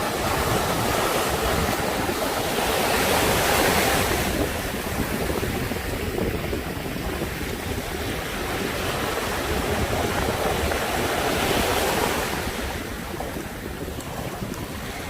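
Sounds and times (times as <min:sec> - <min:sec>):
sea waves breaking on shore: 0:00.0 - 0:15.0
wind buffeting microphone: 0:00.0 - 0:15.0.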